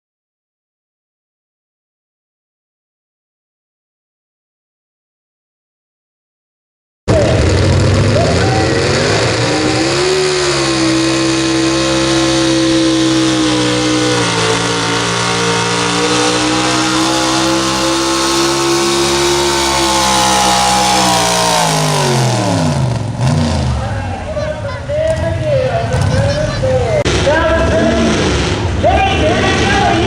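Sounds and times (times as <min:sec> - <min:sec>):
truck engine revving high: 0:07.1 - 0:30.0.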